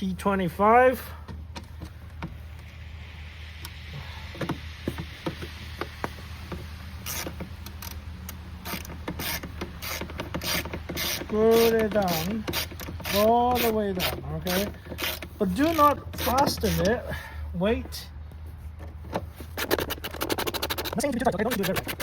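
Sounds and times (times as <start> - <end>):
screwdriver clicking and rattling: 19.6 - 22.0.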